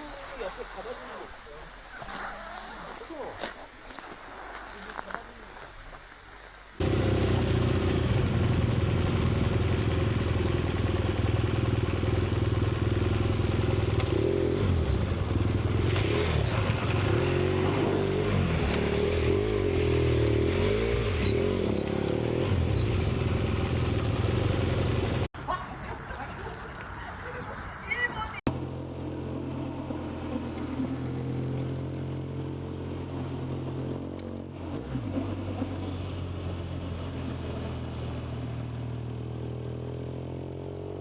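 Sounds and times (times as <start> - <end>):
engine running under load: 6.8 - 25.3.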